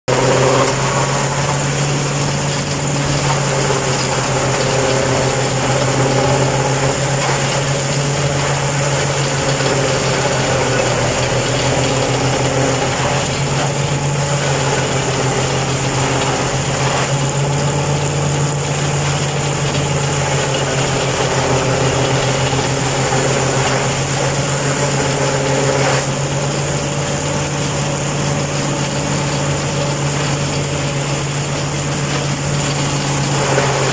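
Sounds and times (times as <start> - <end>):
forage harvester mechanical whir: 0.0 - 33.9
tractor engine running: 0.0 - 33.9.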